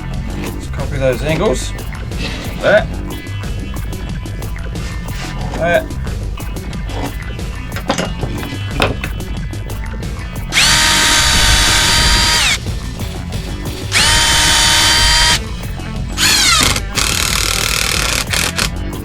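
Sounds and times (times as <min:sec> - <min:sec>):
power drill motor whine: 0:10.5 - 0:12.6, 0:13.9 - 0:15.4, 0:16.2 - 0:18.7.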